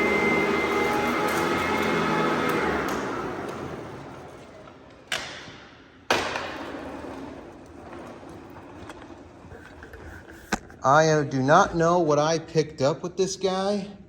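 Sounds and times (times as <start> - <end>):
vacuum motor winding down: 0.0 - 4.8.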